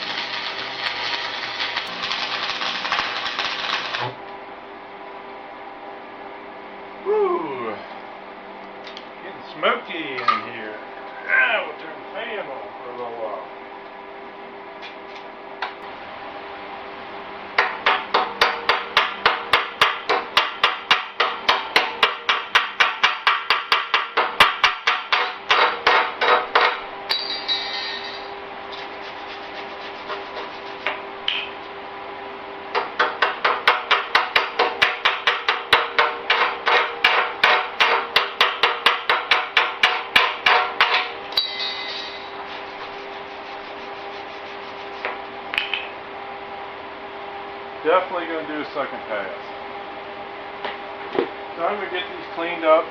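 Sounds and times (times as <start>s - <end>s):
shop fan hum: 0.0s - 52.9s.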